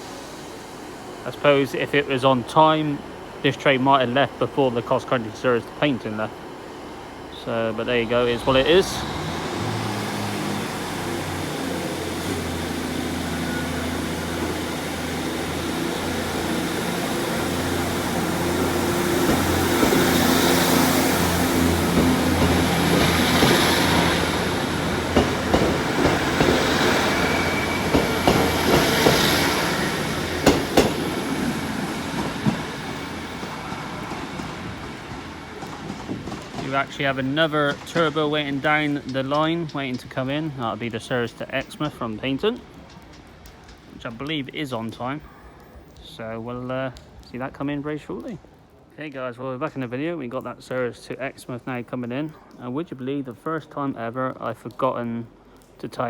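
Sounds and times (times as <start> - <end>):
train diesel engines: 0.0 - 47.2
wheels clicking over rail joints: 7.4 - 48.5.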